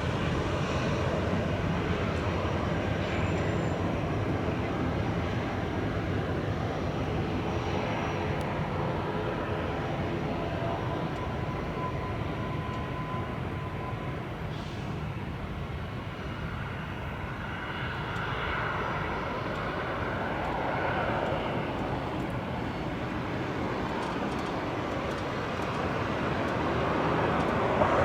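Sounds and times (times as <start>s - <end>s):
jet engine rush: 0.0s - 28.0s.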